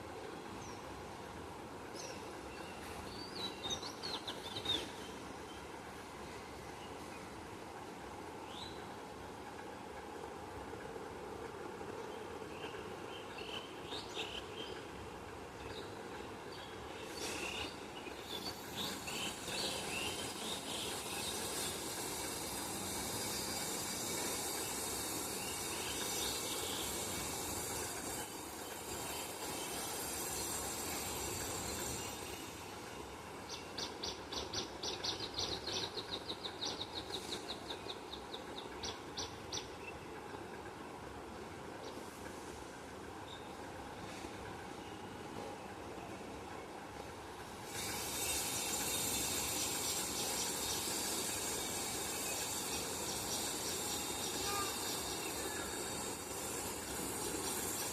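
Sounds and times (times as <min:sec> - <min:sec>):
high even hiss: 0:16.9 - 0:33.9, 0:47.4 - 0:57.9.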